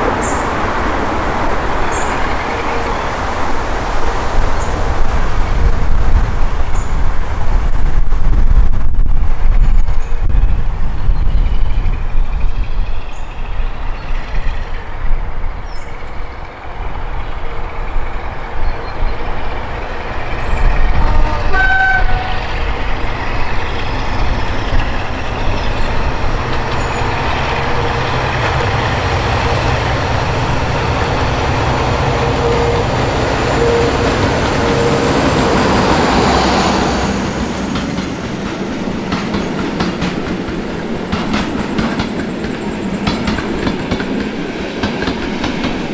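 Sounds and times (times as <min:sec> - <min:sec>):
diesel locomotive engine: 0:00.0 - 0:45.9
train horn toot: 0:20.8 - 0:22.5, 0:31.8 - 0:37.1.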